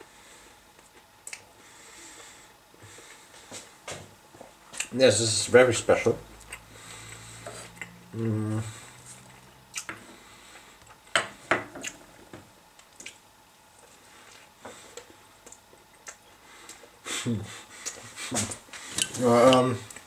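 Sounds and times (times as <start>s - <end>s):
wet mouth smacks and clicks: 13.0s - 13.2s.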